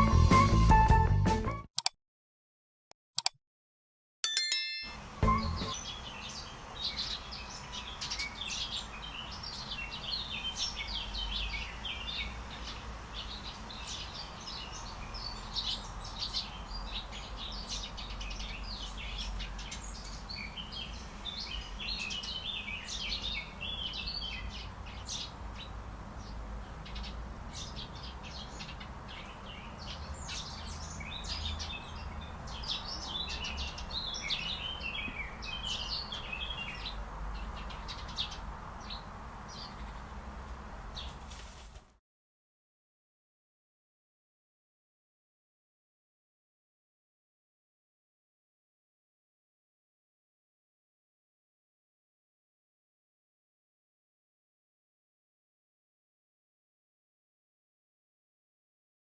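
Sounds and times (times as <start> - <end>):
small birds chirping: 4.8 - 41.8.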